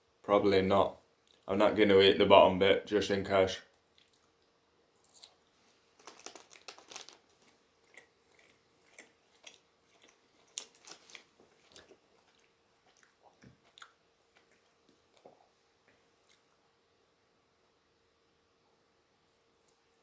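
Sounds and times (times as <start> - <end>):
person biting and chewing: 5.0 - 5.4, 6.0 - 15.5.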